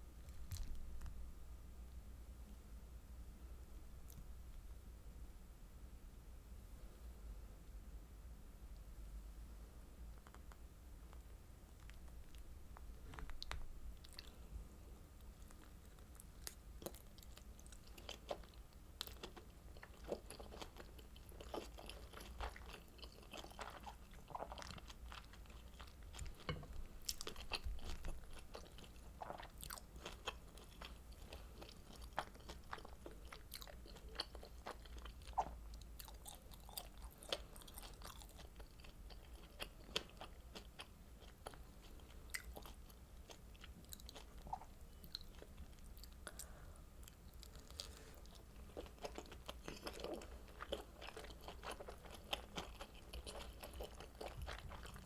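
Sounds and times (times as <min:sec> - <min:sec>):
close-miked chewing and biting: 0:15.2 - 0:55.0.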